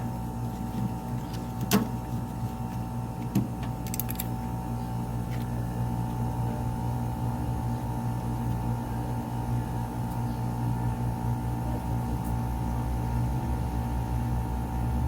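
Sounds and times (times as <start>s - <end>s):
air conditioner unit humming: 0.0s - 15.0s.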